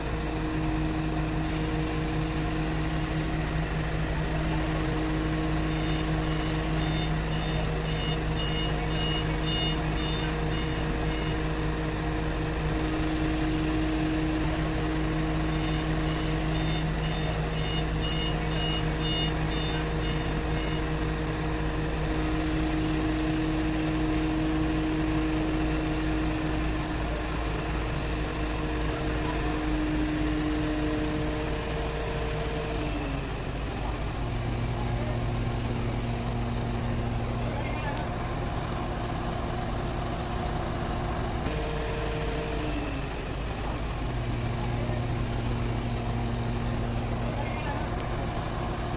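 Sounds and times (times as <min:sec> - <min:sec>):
crane diesel engine running: 0:00.0 - 0:48.9
rapid electronic warning beeps: 0:01.4 - 0:03.4, 0:04.4 - 0:11.5, 0:12.8 - 0:21.0.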